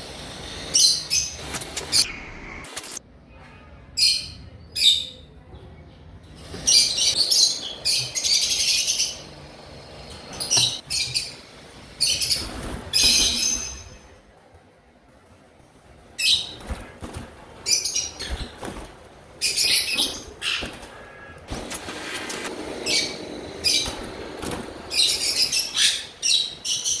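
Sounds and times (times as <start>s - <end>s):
parakeet screeching calls: 19.4s - 21.3s, 22.3s - 27.0s.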